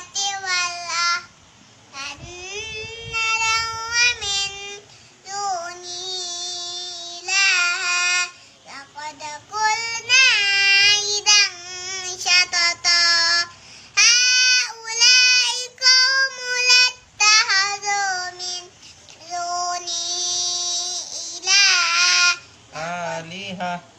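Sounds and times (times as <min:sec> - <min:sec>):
child chanting recitation: 0:00.0 - 0:01.3, 0:01.9 - 0:22.8.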